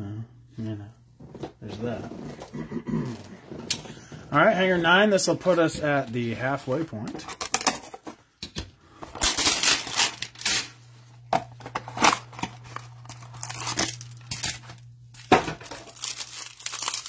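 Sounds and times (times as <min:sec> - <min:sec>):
low steady hum: 0:00.0 - 0:17.0
card packaging tearing and crinkling: 0:09.0 - 0:10.8, 0:11.4 - 0:17.0.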